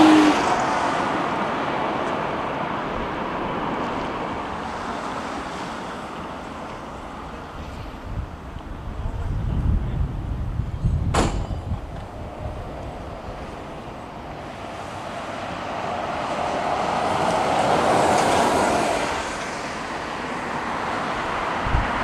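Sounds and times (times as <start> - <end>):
jet airliner passing: 0.0 - 6.4.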